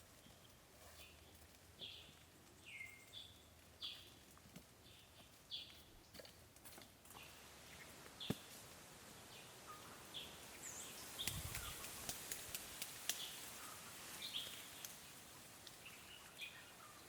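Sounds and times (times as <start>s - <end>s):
bird chirping: 0.2s - 4.2s, 15.8s - 17.0s.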